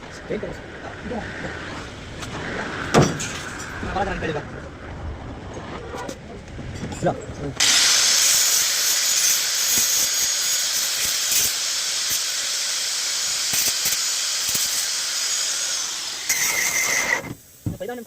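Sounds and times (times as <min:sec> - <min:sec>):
compressed air hissing: 0:07.6 - 0:15.3.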